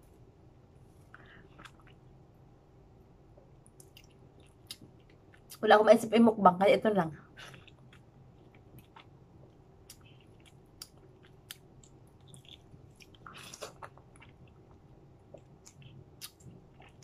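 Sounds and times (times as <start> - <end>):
person chewing: 1.2 - 2.2, 3.7 - 5.6, 7.4 - 17.0
wet mouth clicks: 15.4 - 16.5.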